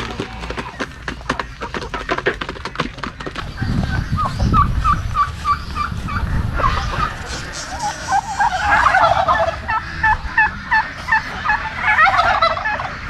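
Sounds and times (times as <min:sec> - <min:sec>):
poultry clucking: 0:00.0 - 0:13.0
low rumble: 0:03.5 - 0:11.1
short repeated poultry calls: 0:03.6 - 0:13.0.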